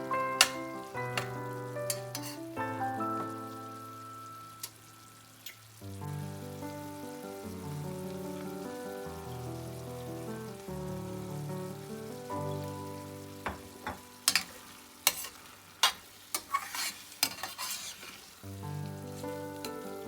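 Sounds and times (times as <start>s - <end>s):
background music: 0.0s - 5.1s, 6.0s - 15.0s
food sizzling in a pan: 0.0s - 20.0s.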